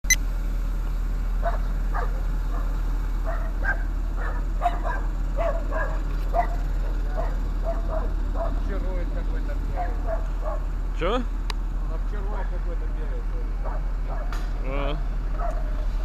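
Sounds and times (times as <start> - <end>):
dog barking and yipping: 1.4 - 8.7, 9.7 - 10.7, 13.6 - 14.4, 15.3 - 15.8.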